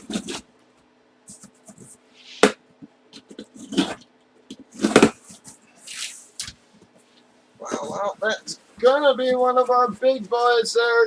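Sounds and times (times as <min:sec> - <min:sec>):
faint electrical hum: 0:00.0 - 0:11.0
box knocks and bumps: 0:04.6 - 0:05.3.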